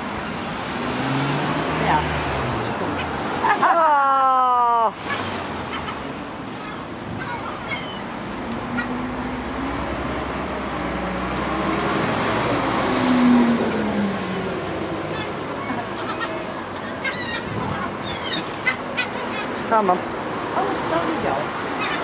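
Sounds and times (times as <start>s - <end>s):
road traffic: 0.0s - 22.0s
vehicle passing: 0.2s - 22.0s
faint gull calls: 6.6s - 8.1s, 15.1s - 19.5s.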